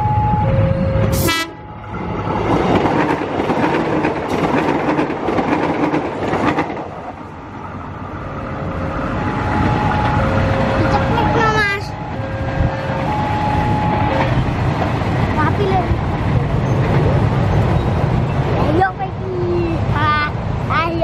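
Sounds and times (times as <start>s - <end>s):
two-tone crossing alarm: 0.0s - 2.1s, 8.7s - 14.5s
train horn blast: 0.7s - 1.8s, 9.3s - 14.5s
train wheels clattering over joints: 2.3s - 7.2s.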